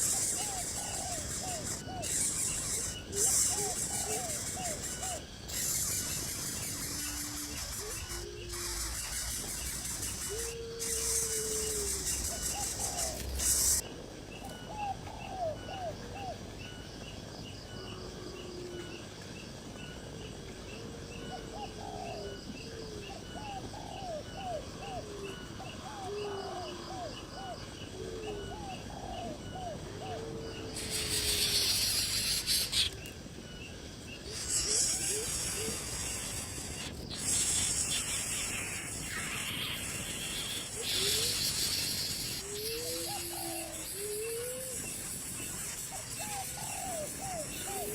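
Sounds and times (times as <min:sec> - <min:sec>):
birds calling: 0:00.0 - 0:13.8, 0:21.5 - 0:47.9
insect chirping: 0:00.0 - 0:47.9
loud hissing noise: 0:30.7 - 0:33.0, 0:34.2 - 0:47.9.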